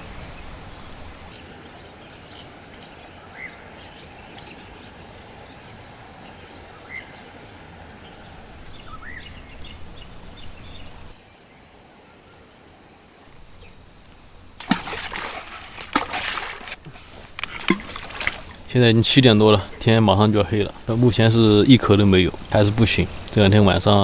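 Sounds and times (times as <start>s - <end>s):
pulsing insect trill: 0.0s - 2.4s, 8.3s - 24.0s
high-pitched insect trill: 0.0s - 2.5s, 8.9s - 24.0s.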